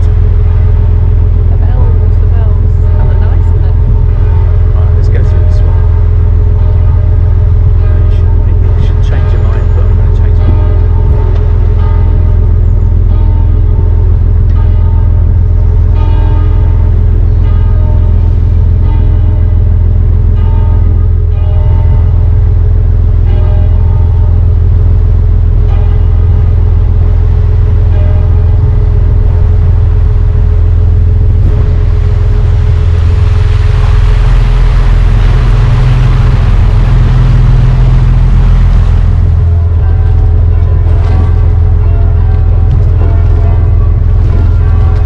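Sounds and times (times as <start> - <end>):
boat engine droning: 0.0 - 45.0
broad rushing noise: 27.0 - 45.0.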